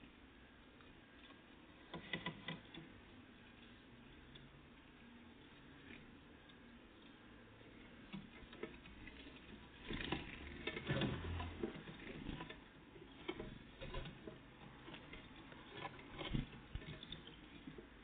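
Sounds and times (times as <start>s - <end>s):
birds pecking and tapping: 7.8s - 18.0s.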